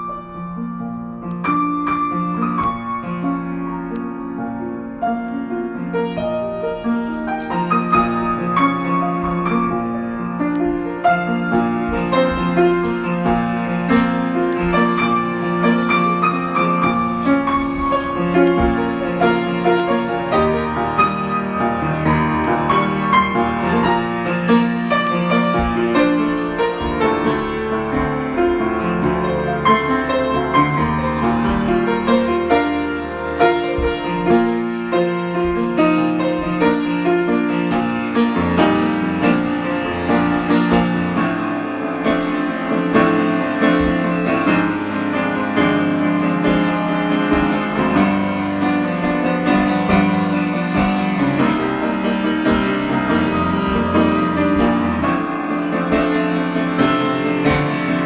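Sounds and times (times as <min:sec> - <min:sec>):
solo piano improvisation: 0:00.0 - 0:58.0.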